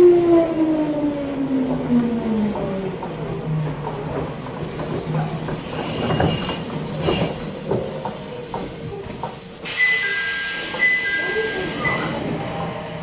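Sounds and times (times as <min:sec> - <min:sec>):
train car interior hum: 0:00.0 - 0:13.0
wheels and brakes squealing: 0:05.5 - 0:08.5.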